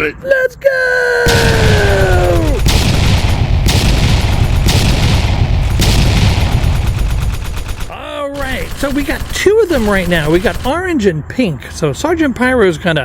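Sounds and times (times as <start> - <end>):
fireworks crackling and booming: 1.3 - 10.8.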